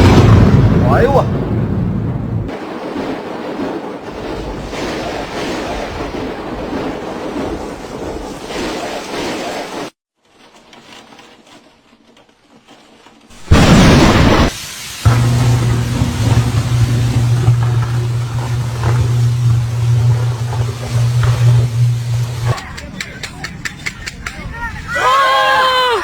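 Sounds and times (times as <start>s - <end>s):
loud thunderclap: 0.0s - 8.2s, 13.4s - 22.6s
steady rain hiss: 13.3s - 22.6s.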